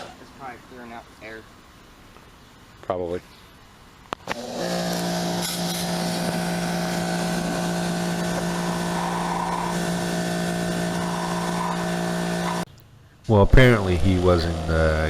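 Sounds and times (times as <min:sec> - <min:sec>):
motor high-pitched hum: 0:04.3 - 0:12.7.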